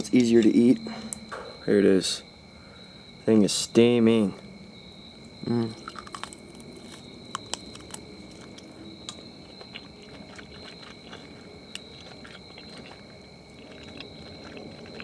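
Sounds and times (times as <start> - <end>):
crickets trilling: 0.0 - 15.0
person chewing meat: 5.8 - 15.0.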